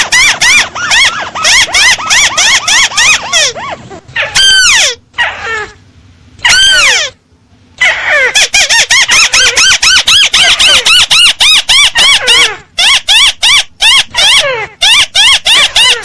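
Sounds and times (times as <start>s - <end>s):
crake calling: 0.0s - 5.8s.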